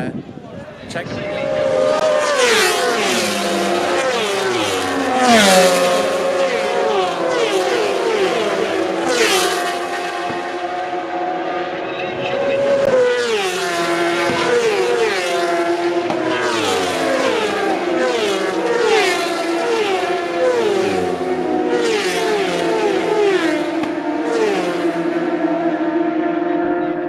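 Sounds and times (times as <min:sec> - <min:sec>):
racing motorcycles passing at speed: 0:00.6 - 0:27.0
steady drone: 0:20.5 - 0:21.8.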